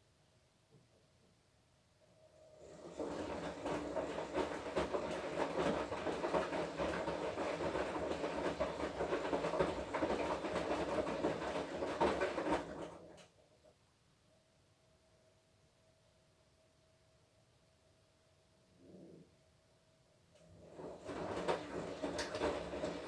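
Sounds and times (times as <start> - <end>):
washing machine drum tumbling laundry: 2.6 - 13.3, 20.4 - 23.0.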